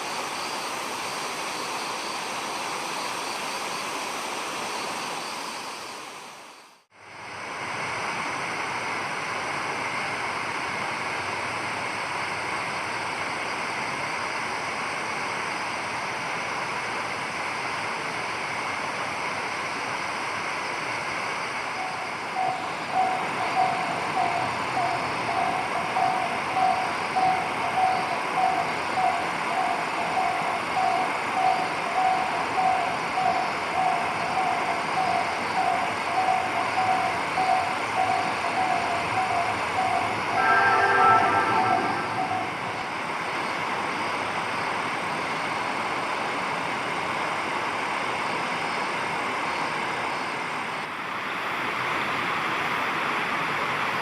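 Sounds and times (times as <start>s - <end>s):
steady rushing outdoor noise: 0.0s - 54.0s
pulsing low tone: 39.9s - 43.0s.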